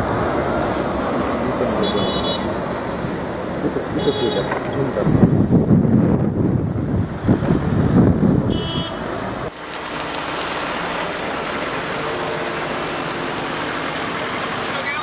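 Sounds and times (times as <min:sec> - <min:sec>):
wind rumbling on microphone: 0:02.6 - 0:14.3
steady rushing noise: 0:04.7 - 0:15.0.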